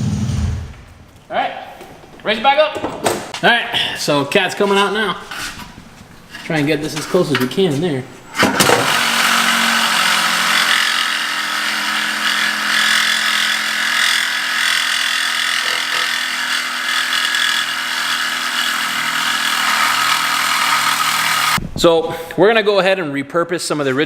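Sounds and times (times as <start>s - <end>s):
power saw cutting steel pipe: 8.4s - 21.6s.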